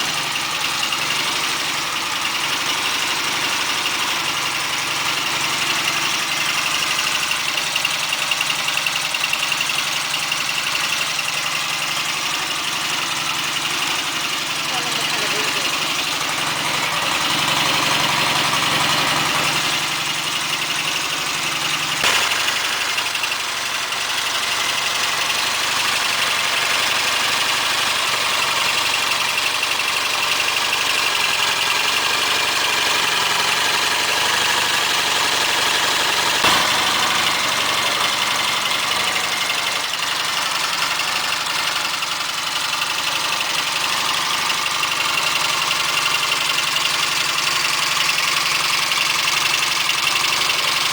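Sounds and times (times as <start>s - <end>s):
motorcycle engine idling: 0.0s - 50.9s
sharp knock: 22.0s - 23.6s, 36.4s - 37.6s.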